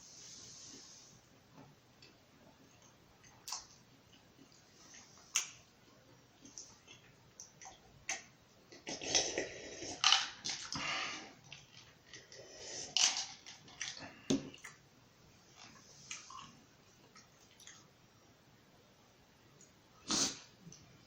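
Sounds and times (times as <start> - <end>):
chewing and mouth noises: 6.4 - 10.8.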